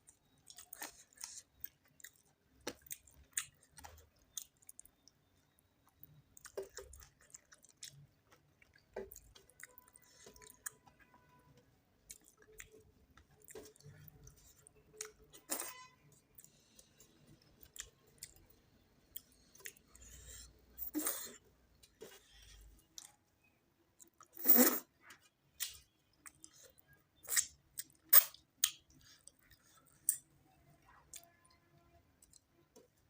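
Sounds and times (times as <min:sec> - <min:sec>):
person chewing food: 0:00.0 - 0:11.4, 0:12.0 - 0:23.2.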